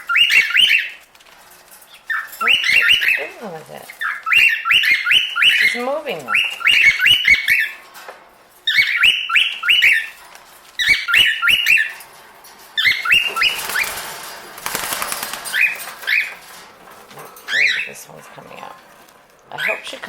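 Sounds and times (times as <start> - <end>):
cockatiel chirping: 0.0 - 1.0, 1.9 - 7.8, 8.7 - 10.2, 10.8 - 12.0, 12.8 - 14.0, 15.5 - 16.4
rustling: 0.0 - 20.0.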